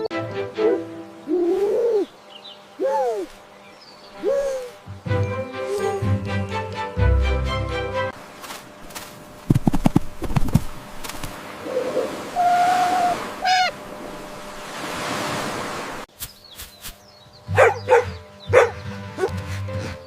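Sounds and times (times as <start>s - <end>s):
dog barking: 17.5s - 19.4s.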